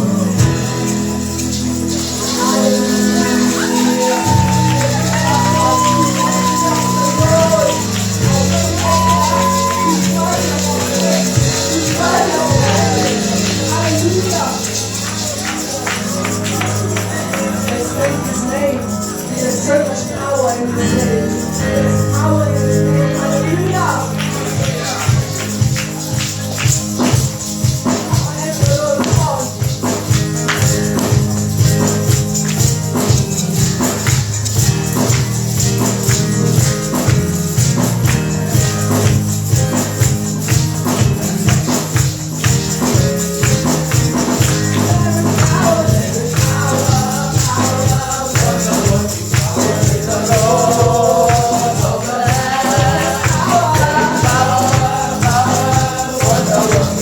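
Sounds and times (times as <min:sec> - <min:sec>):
gospel music with beat and bass: 0:00.0 - 0:57.0
tambourine: 0:00.0 - 0:57.0
people singing: 0:01.3 - 0:28.5, 0:42.8 - 0:57.0.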